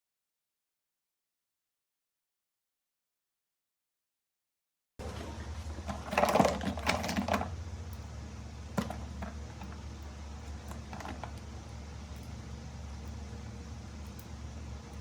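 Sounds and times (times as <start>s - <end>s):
low electrical hum: 5.0s - 15.0s.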